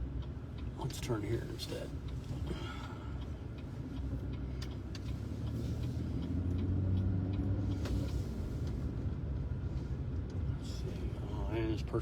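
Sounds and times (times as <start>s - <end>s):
car engine and road rumble: 0.0s - 12.0s
turn signal ticking: 0.0s - 12.0s.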